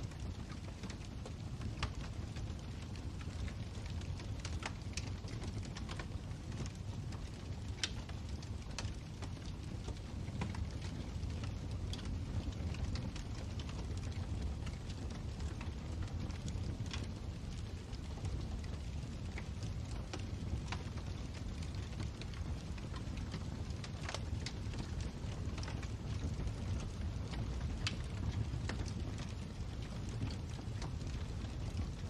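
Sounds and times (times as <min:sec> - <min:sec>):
fire crackling and popping: 0:00.0 - 0:32.0.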